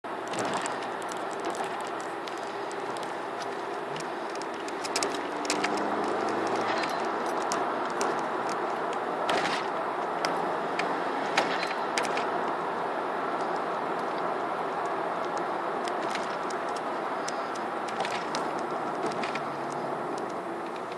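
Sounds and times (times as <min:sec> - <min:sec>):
light clicking rattles: 0:00.2 - 0:12.7.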